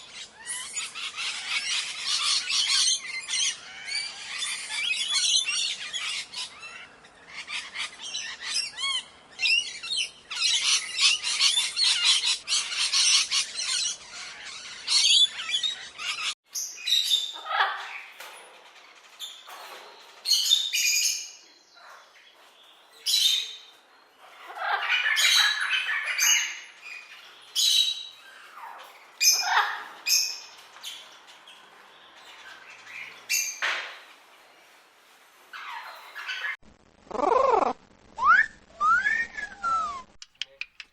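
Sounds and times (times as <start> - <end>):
birds chirping and squawking: 0.0 - 38.4
loud bird squawks: 35.6 - 38.5.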